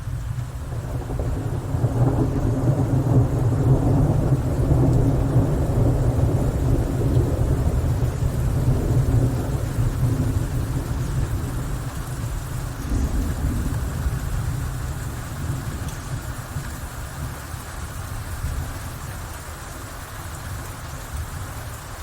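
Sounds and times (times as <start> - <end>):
rolling thunder: 0.0 - 17.4
rain hissing: 0.0 - 22.0.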